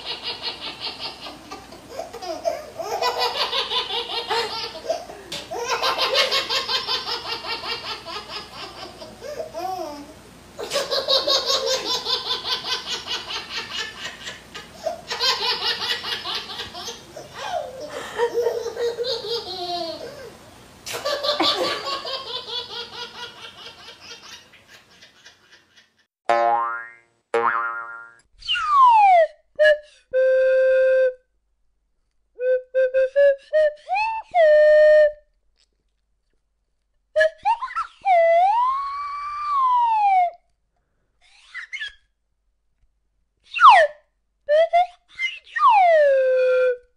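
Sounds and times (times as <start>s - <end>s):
hearty laughter: 21.0s - 22.3s
cartoon whistle toots: 28.4s - 31.2s, 37.2s - 40.4s, 43.5s - 46.9s.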